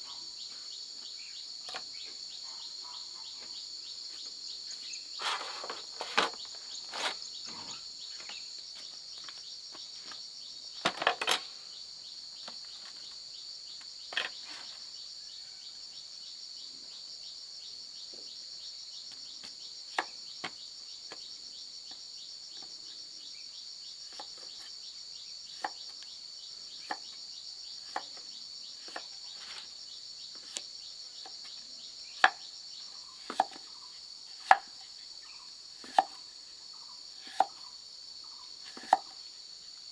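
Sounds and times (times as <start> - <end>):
high-pitched insect chorus: 24.8 - 39.9.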